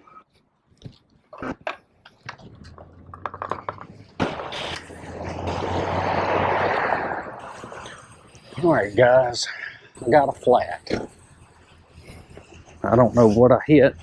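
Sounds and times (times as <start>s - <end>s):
clicks and knocks: 0.8s - 4.8s
car driving past: 4.3s - 8.8s.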